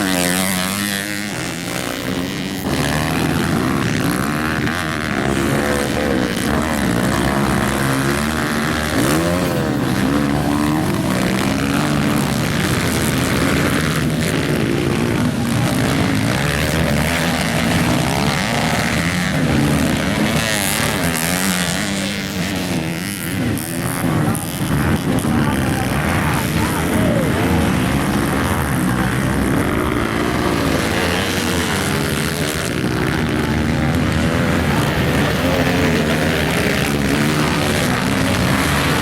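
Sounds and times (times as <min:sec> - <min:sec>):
motocross bike engines revving: 0:00.0 - 0:39.0.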